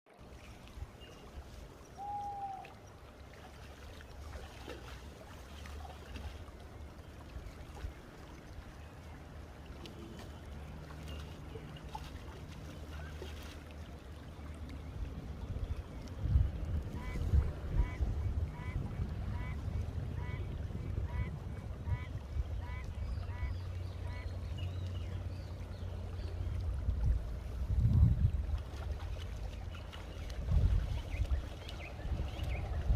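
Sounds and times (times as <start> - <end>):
short chirp-like call: 2.0 - 2.7.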